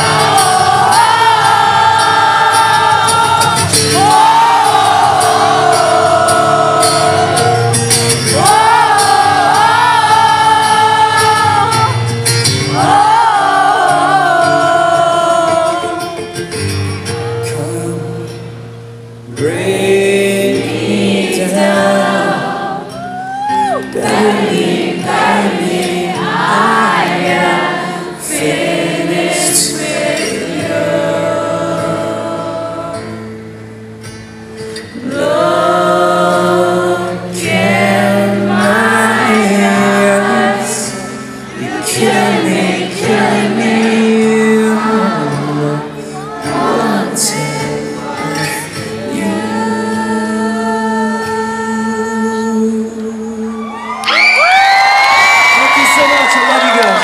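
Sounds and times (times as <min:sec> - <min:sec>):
voices singing together: 0:00.0 - 0:16.2, 0:19.4 - 0:33.5, 0:34.8 - 0:54.0.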